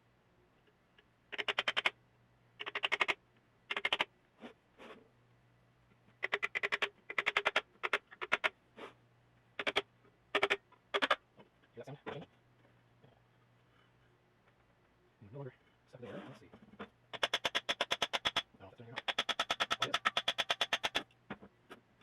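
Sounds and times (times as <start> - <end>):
faint steady hum: 0.0 - 22.0
ratchet wrench clicking: 19.0 - 21.0.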